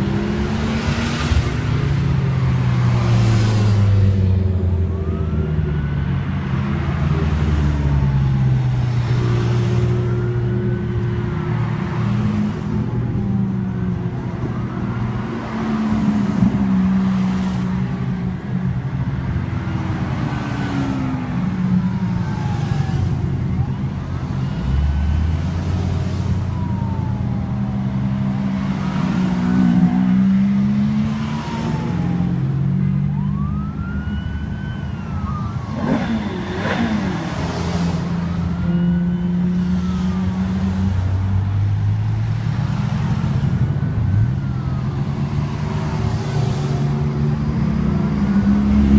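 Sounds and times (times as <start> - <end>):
cars driving past revving: 35.6 - 38.4, 44.5 - 48.9.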